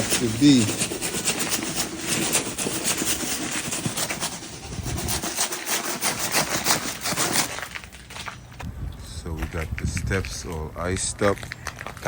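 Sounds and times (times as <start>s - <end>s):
rock salt crunching on icy ground: 6.2s - 8.5s.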